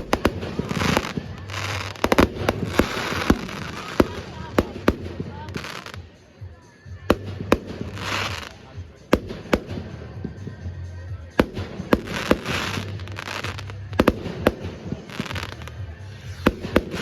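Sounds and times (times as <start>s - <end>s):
fireworks bangs: 0.0s - 6.2s, 7.0s - 10.6s, 11.2s - 17.0s
fireworks hiss: 0.0s - 6.3s, 7.0s - 10.3s, 11.4s - 17.0s.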